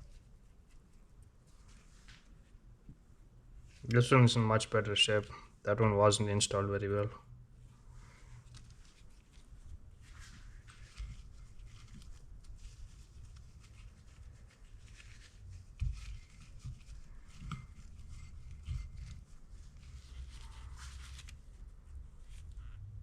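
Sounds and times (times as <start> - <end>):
light clicks rustling and scraping: 10.3 - 21.4.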